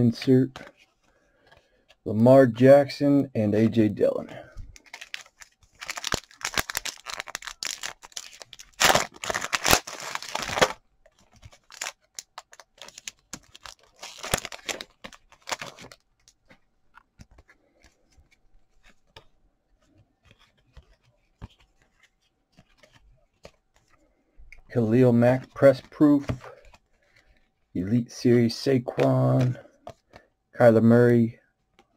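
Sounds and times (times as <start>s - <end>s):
wrapper tearing and crinkling: 4.8s - 16.4s
faint clicks of cards handled: 14.6s - 24.7s.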